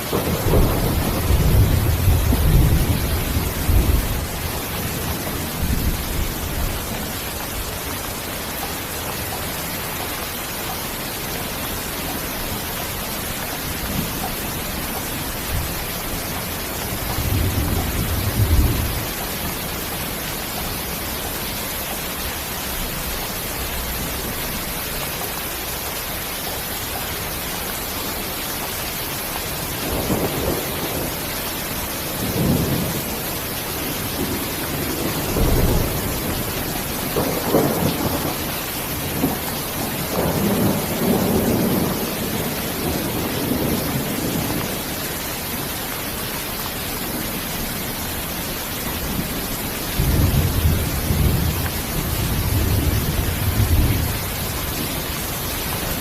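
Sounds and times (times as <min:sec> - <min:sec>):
thunder rumbling: 0:00.0 - 0:08.8, 0:12.1 - 0:21.9, 0:29.5 - 0:45.0, 0:46.9 - 0:56.0
heavy rain: 0:00.0 - 0:56.0.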